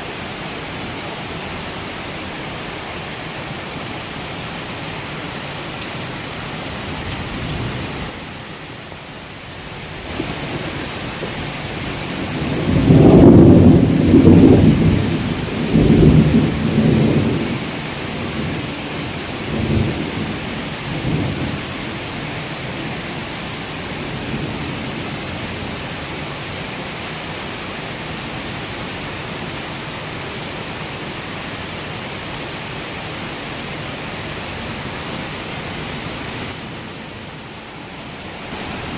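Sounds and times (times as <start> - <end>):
heavy rain falling: 0.0 - 38.9
rolling thunder: 11.8 - 18.6.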